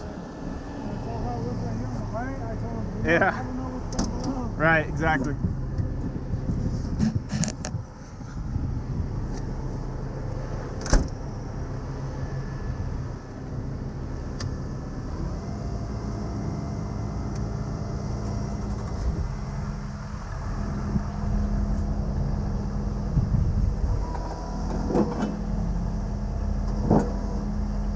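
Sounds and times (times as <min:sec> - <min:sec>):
truck engine idling: 0:00.0 - 0:27.9.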